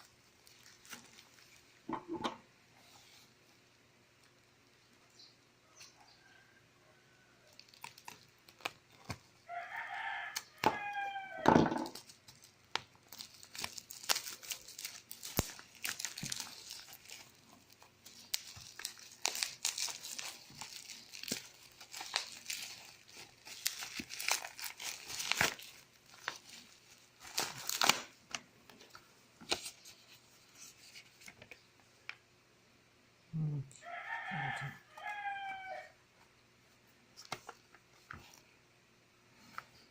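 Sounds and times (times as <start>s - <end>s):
packaging crinkling and tearing: 0.2s - 1.7s, 7.6s - 9.3s, 11.9s - 31.6s
rooster crowing: 9.5s - 11.6s, 33.8s - 36.0s.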